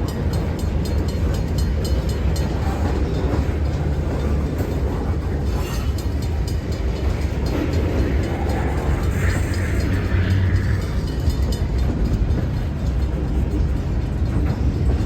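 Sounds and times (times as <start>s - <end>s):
freight train rumbling by: 0.0s - 15.0s.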